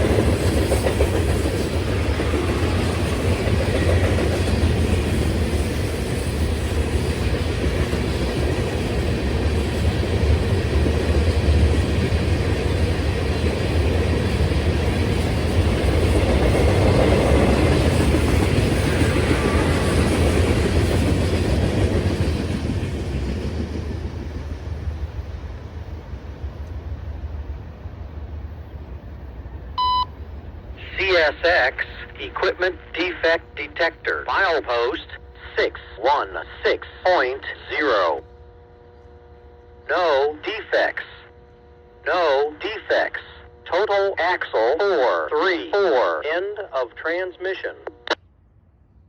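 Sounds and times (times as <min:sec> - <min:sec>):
freight train wheels rumbling and clattering: 0:00.0 - 0:29.7.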